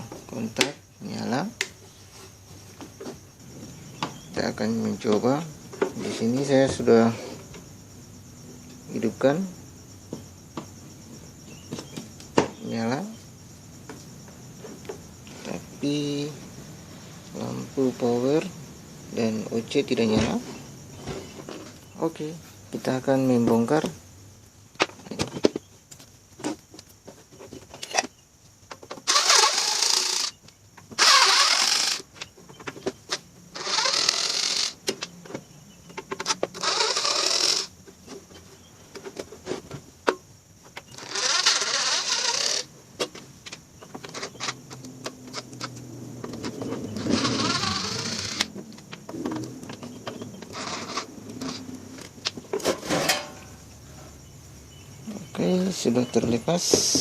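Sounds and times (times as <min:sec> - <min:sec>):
electric screwdriver whirring: 0:29.1 - 0:30.3, 0:31.0 - 0:32.0, 0:33.6 - 0:34.8, 0:36.6 - 0:37.7, 0:47.1 - 0:48.5.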